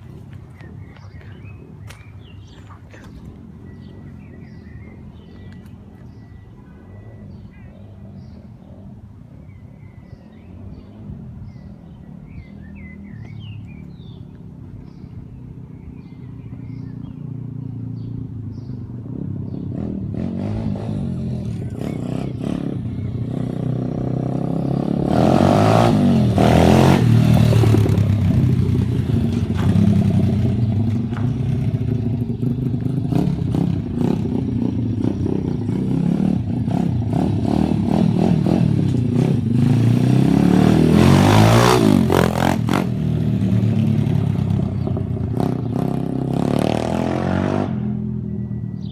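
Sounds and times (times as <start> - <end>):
birds chirping: 0.0 - 48.9
dirt bike engine revving: 19.0 - 48.9.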